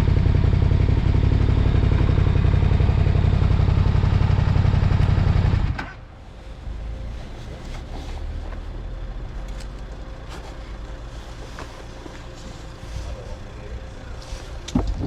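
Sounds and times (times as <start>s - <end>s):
motorcycle engine running: 0.0s - 6.1s.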